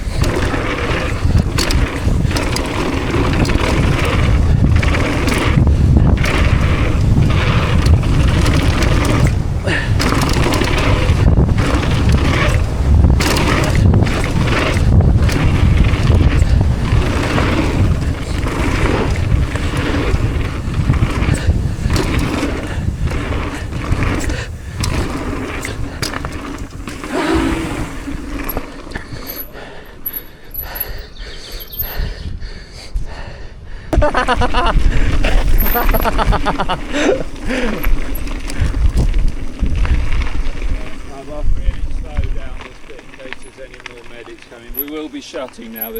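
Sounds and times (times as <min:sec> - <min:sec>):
bike clattering knocks: 0:00.0 - 0:30.8
wind rush on microphone: 0:00.0 - 0:43.2.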